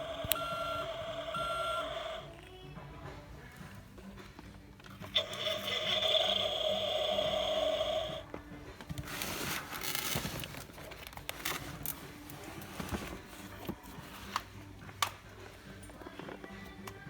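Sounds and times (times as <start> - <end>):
crinkling and rustling handling noise: 8.2 - 17.0.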